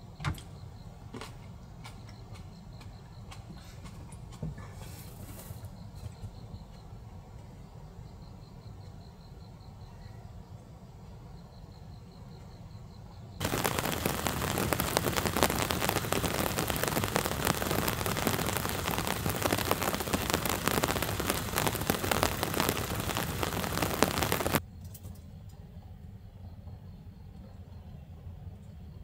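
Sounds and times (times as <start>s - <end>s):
heavy rain on hard surface: 13.4s - 24.6s.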